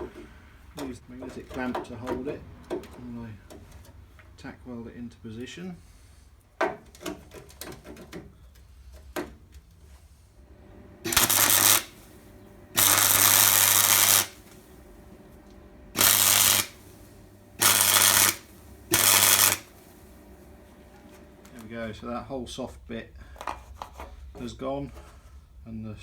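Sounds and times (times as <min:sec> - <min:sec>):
electric welder arcing: 0:10.5 - 0:21.8.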